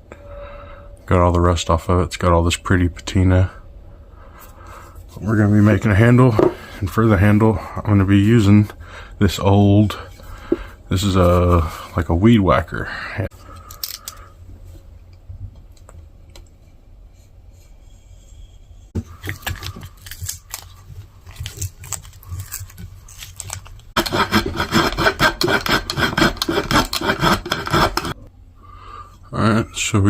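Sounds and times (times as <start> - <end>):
low hum: 0.0 - 19.2
hand saw strokes on wood: 24.0 - 28.2.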